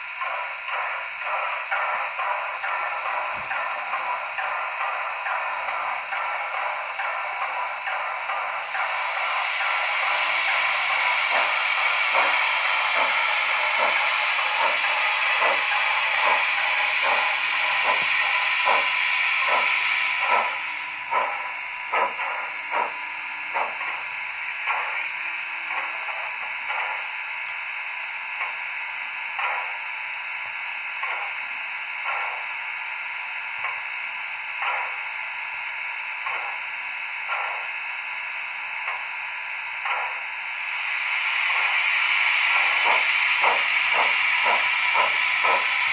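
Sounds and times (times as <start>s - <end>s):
steam locomotive puffs: 0.0s - 27.1s, 36.3s - 37.8s, 39.8s - 45.9s
loud steam hiss: 8.8s - 20.6s.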